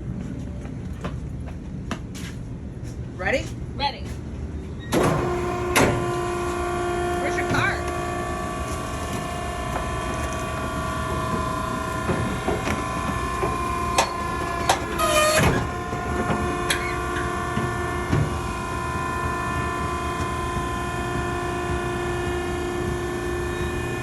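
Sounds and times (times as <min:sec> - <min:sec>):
baler motor hum: 0:05.0 - 0:24.0.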